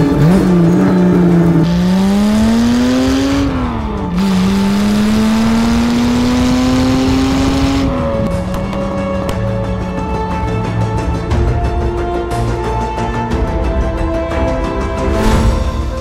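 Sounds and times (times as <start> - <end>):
car engine accelerating through gears: 0.0 - 9.4.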